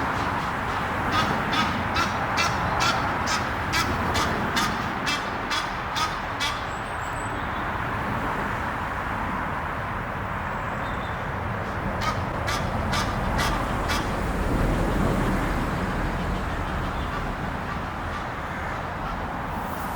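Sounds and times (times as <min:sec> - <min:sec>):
geese honking: 0:00.0 - 0:06.7, 0:11.8 - 0:19.3
road traffic hum: 0:00.0 - 0:19.9.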